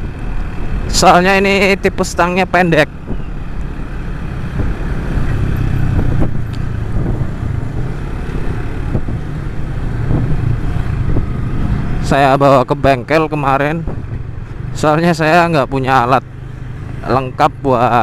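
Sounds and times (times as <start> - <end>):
wind rushing over microphone: 2.8 - 12.0, 13.7 - 14.7.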